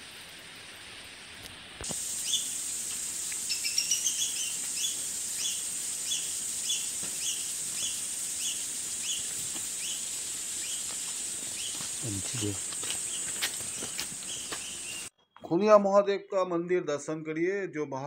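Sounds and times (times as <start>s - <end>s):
forest background hiss: 0.0s - 15.1s
bird chirping: 3.4s - 10.9s, 11.5s - 15.8s.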